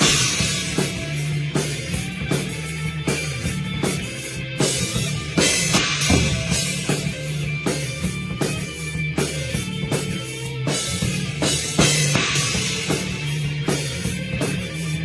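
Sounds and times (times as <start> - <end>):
bass and electric guitar: 0.0 - 15.0
drum kit playing: 0.0 - 15.0.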